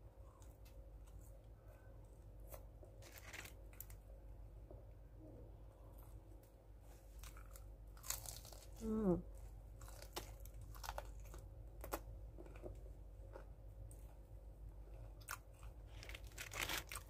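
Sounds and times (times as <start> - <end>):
crunching fried chicken: 2.5 - 4.0, 7.2 - 8.8, 9.6 - 14.0, 15.0 - 17.0
person humming: 8.8 - 9.2.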